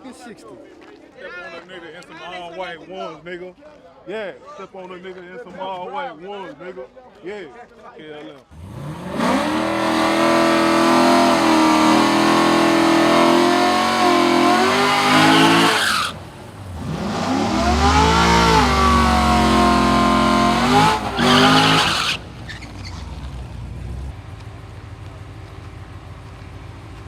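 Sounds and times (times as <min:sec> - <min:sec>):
car engine revving: 0:08.5 - 0:27.0.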